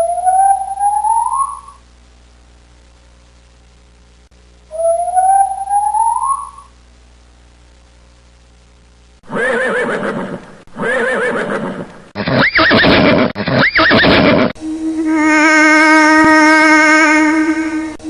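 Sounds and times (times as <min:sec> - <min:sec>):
rising whistle-like tone: 0:00.0 - 0:01.8, 0:04.7 - 0:06.7
swooping animal call: 0:00.0 - 0:01.8, 0:04.7 - 0:06.7, 0:09.3 - 0:17.4
low hum: 0:00.0 - 0:09.3, 0:14.4 - 0:18.0
loud quavering animal calls: 0:09.3 - 0:14.5.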